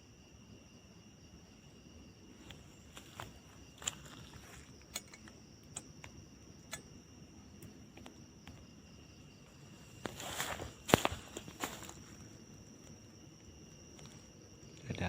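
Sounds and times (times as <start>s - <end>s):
night insects droning: 0.0s - 15.0s
rustling undergrowth: 2.3s - 5.6s, 7.8s - 14.5s
footsteps on forest floor: 2.4s - 4.8s, 9.5s - 12.9s.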